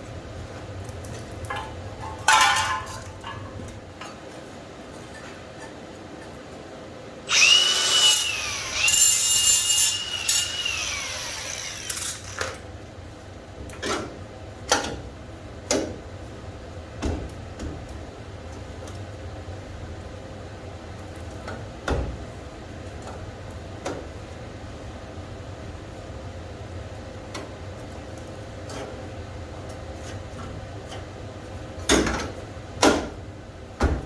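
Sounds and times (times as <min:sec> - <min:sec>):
power tool whining: 0:07.3 - 0:12.6.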